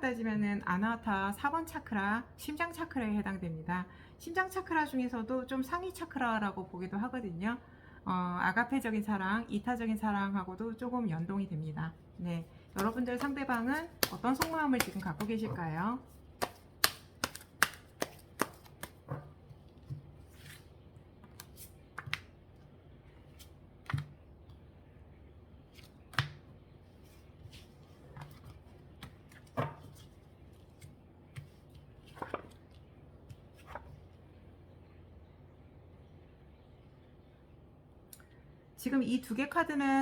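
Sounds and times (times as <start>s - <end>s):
cards snapping and tapping: 12.8s - 15.5s, 16.4s - 20.0s, 21.2s - 22.3s, 25.8s - 26.4s.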